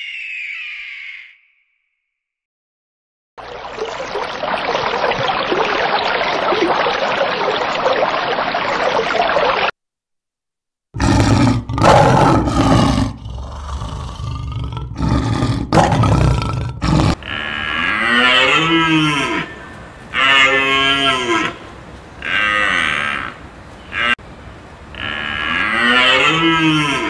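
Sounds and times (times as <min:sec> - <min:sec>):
harsh animal calls: 0:11.0 - 0:21.6, 0:22.2 - 0:24.2, 0:24.9 - 0:27.0
drawn-out lowing call: 0:16.9 - 0:27.0.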